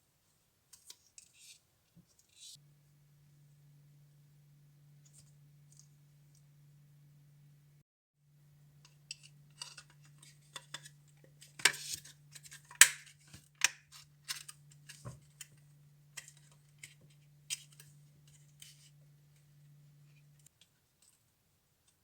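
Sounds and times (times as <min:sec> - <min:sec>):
steady low hum: 0:02.6 - 0:20.5
small clicks taps and scrapes: 0:08.8 - 0:15.6, 0:16.2 - 0:19.5, 0:20.1 - 0:22.0.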